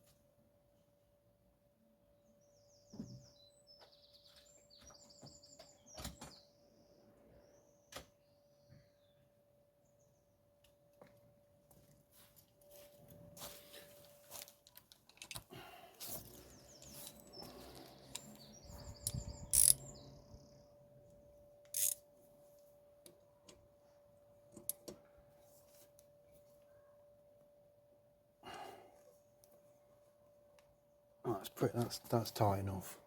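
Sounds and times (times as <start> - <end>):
bird chirping: 16.2 - 21.0.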